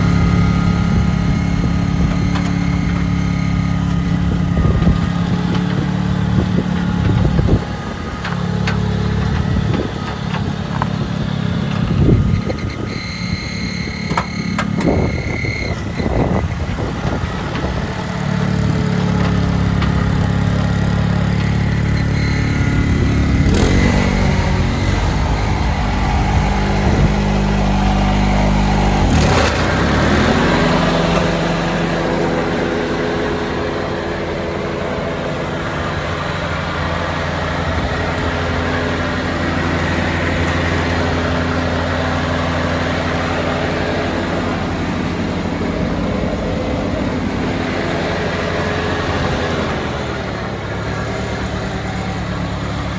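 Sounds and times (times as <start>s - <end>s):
lawn tractor engine running: 0.0s - 52.9s.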